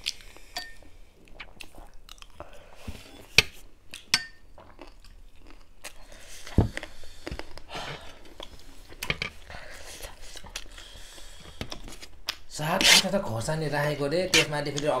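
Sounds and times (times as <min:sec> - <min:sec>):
chewing crunchy snack: 0:01.2 - 0:02.6, 0:03.9 - 0:06.1.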